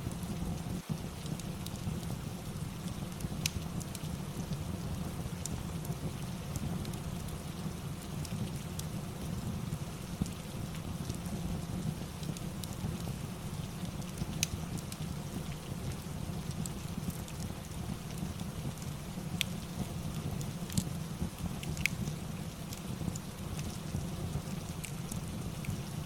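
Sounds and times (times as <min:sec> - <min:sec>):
fireplace crackling: 0:00.0 - 0:26.0
steady rain: 0:00.0 - 0:26.0.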